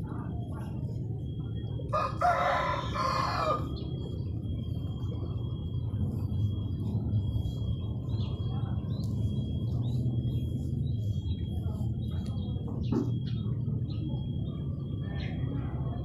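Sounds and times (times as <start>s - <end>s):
birds chirping: 0.0s - 16.0s
high-pitched whine: 0.0s - 16.0s
low steady rumble: 0.0s - 16.0s.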